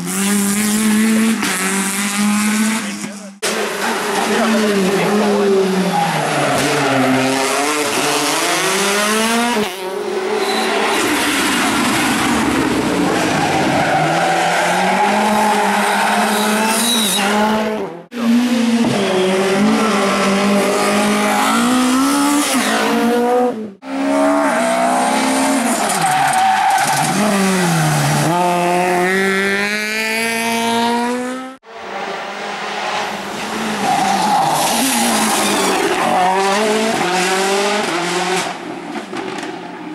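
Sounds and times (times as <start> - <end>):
rally cars revving past: 27.0 - 33.8.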